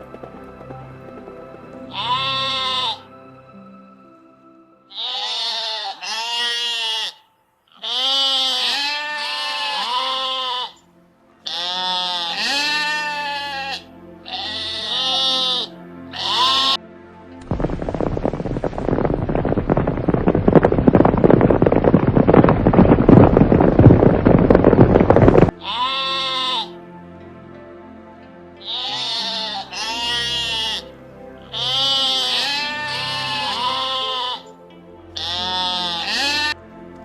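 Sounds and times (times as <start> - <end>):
faint background music: 0.0 - 37.0
sheep bleating: 1.9 - 3.0, 4.9 - 10.8, 11.4 - 16.8, 25.6 - 26.8, 28.6 - 30.9, 31.5 - 34.5, 35.2 - 36.6
dense rough noise: 17.4 - 25.5.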